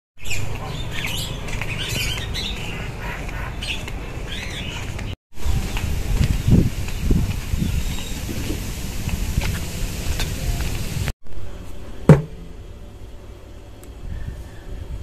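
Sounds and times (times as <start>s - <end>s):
birds chirping: 0.2s - 8.5s.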